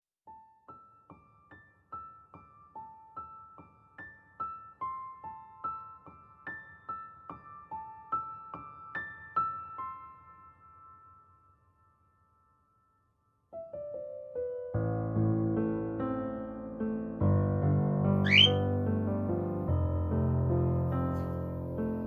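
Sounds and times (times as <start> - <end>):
solo piano melody: 13.5 - 22.0.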